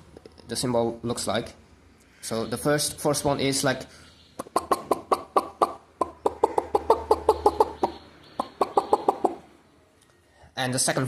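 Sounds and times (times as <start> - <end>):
chicken clucking: 4.2 - 9.6.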